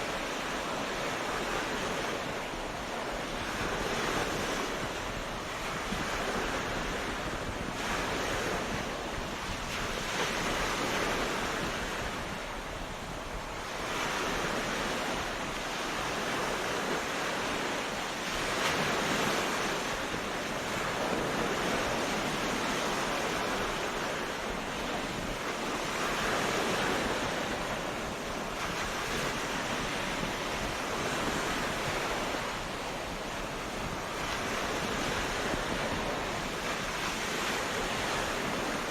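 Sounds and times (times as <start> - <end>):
ocean surf washing onto beach: 0.0 - 38.9.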